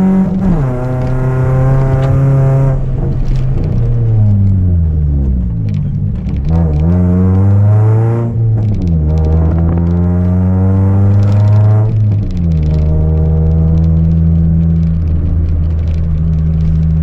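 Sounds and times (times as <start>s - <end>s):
car engine revving through gears: 0.0s - 17.0s.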